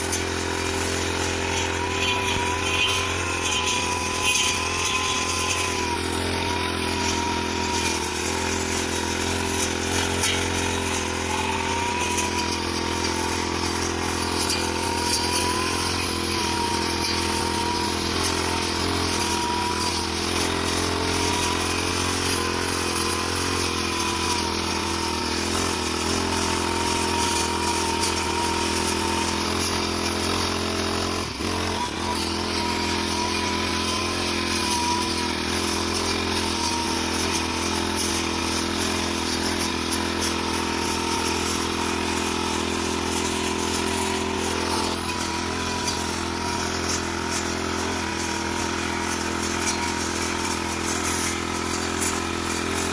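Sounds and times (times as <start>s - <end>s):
lawn mower engine running: 0.0s - 52.9s.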